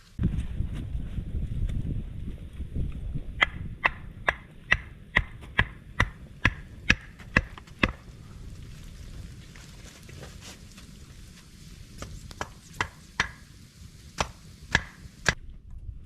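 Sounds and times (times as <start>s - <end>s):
sharp chopping strikes: 3.4s - 8.0s, 14.2s - 15.4s.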